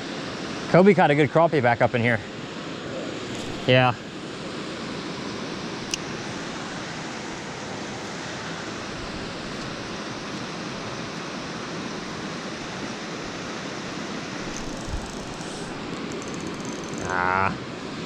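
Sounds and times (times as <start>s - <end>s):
creek water rushing: 4.5s - 16.1s
small click: 5.9s - 6.1s.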